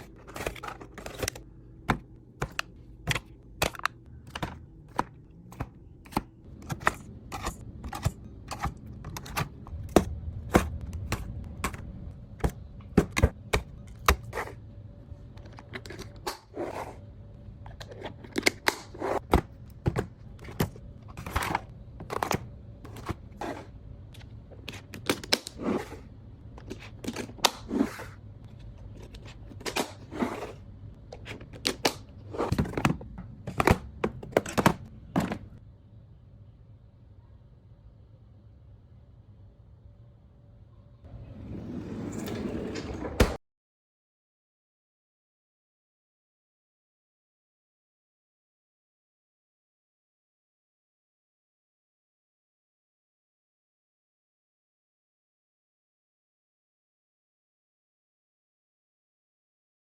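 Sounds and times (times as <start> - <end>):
food containers clicking and tapping: 0.0 - 14.3, 31.1 - 35.6.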